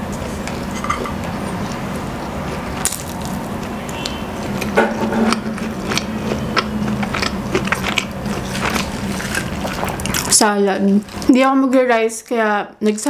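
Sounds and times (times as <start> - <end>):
low hum: 0.0 - 11.3
crunchy lettuce chewing: 1.3 - 11.3.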